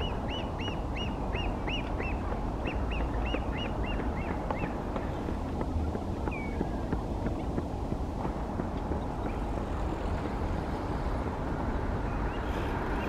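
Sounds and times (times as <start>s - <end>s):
bird calling arched notes: 0.0s - 5.2s.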